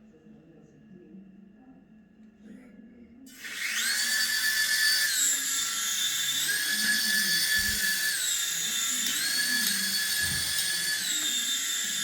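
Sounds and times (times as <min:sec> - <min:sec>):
toy helicopter motor whining: 0:03.3 - 0:12.0.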